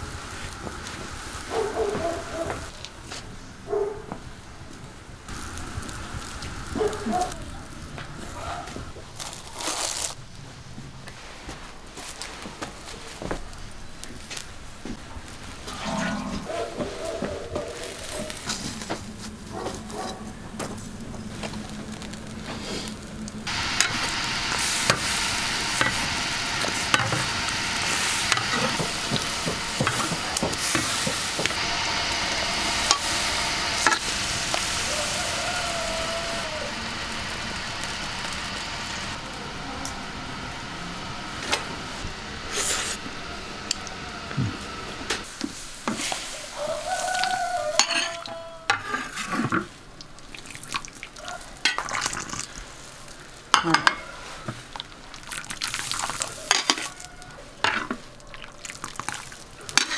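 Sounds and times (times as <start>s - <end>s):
food frying in hot oil: 0.0s - 2.8s, 5.3s - 10.2s, 20.5s - 48.0s, 49.0s - 59.9s
metal spatula scraping pan: 15.7s - 16.5s, 47.8s - 49.6s
utensils clinking against bowls: 47.8s - 49.6s, 53.5s - 54.2s, 56.4s - 56.9s.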